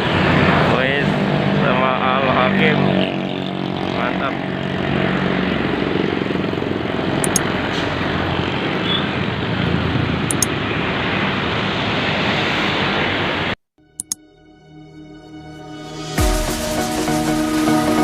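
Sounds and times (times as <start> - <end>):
diesel truck engine rumbling: 3.0 - 11.2.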